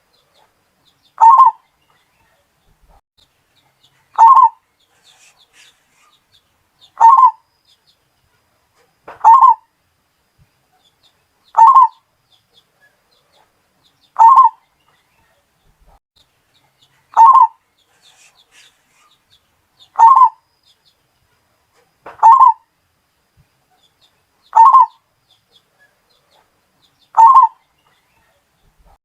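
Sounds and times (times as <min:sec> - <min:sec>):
dove cooing: 0:01.2 - 0:01.6, 0:04.1 - 0:05.7, 0:07.0 - 0:07.4, 0:09.2 - 0:09.6, 0:11.6 - 0:12.0, 0:14.2 - 0:14.6, 0:17.2 - 0:17.6, 0:20.0 - 0:20.4, 0:22.2 - 0:22.6, 0:24.6 - 0:25.0, 0:27.2 - 0:27.6.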